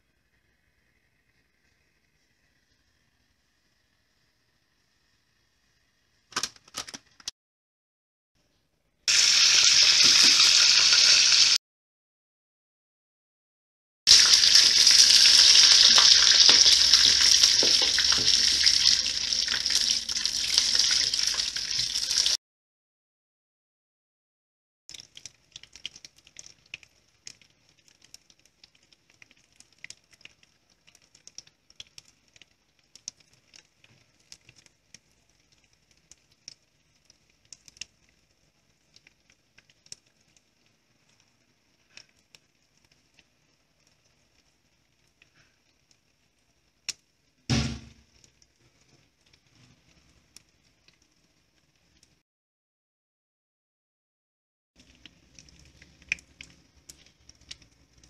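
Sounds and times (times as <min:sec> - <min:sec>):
oil sizzling and popping: 0:00.1 - 0:07.3, 0:09.1 - 0:11.6, 0:14.1 - 0:22.4, 0:24.9 - 0:52.2, 0:54.8 - 0:58.0
loud knock: 0:47.5 - 0:48.0.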